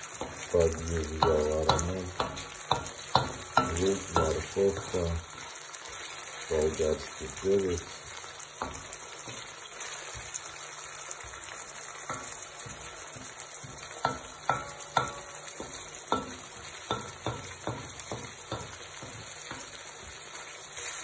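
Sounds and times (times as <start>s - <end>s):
vegetables sizzling in hot oil: 0.0s - 21.0s
utensil knocking and scraping pan: 0.2s - 5.4s, 8.6s - 10.3s, 12.0s - 20.2s.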